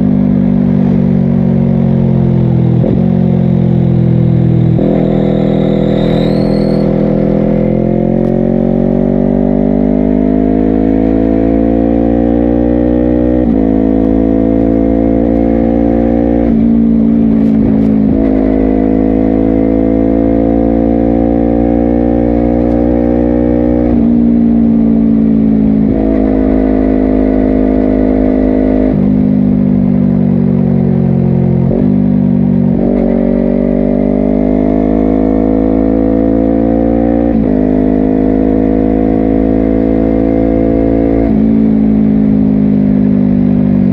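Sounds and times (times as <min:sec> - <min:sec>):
motorcycle engine under load: 0:13.5 - 0:19.5.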